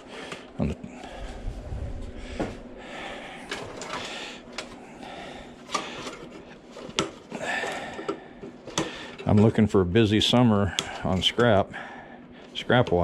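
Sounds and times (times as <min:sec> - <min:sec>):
low rumble: 0:01.0 - 0:02.8.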